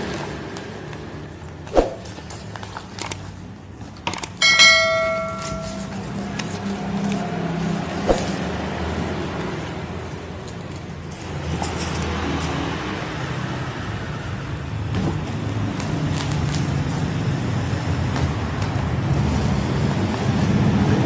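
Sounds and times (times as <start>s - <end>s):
ringing metal strike: 4.4s - 6.2s.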